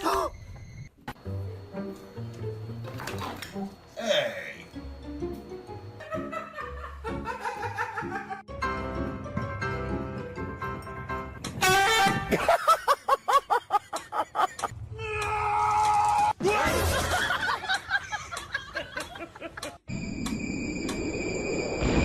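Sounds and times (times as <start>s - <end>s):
background music: 1.2s - 12.6s
person laughing: 6.0s - 8.4s, 12.3s - 14.7s.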